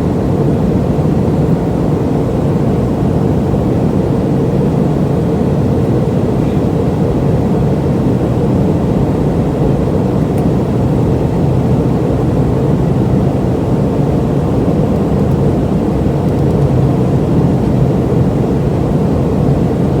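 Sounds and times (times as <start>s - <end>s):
jet engine rumble: 0.0s - 20.0s.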